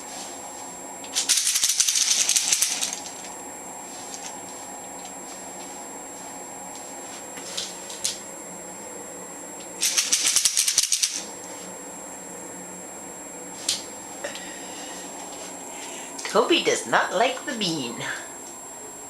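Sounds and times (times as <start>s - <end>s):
seed pod rattling: 1.1s - 3.2s, 9.8s - 11.2s.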